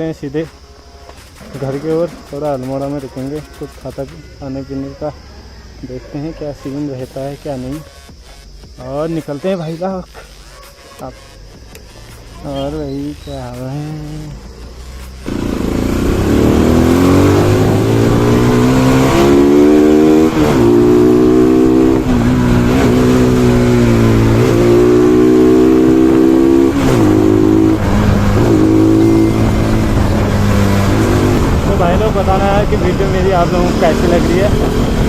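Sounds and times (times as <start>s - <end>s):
motorcycle engine accelerating: 11.4s - 35.0s.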